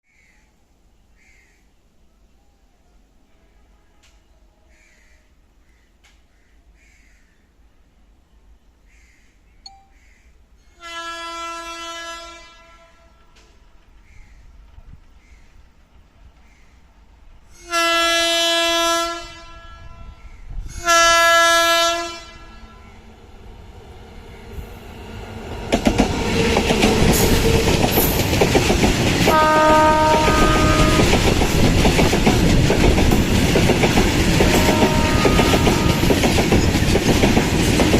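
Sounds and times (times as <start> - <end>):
train horn blasts: 10.7 - 13.7, 17.5 - 23.1, 29.2 - 31.4, 34.2 - 36.4
train wheels clattering on rails: 13.2 - 16.5, 25.4 - 37.9.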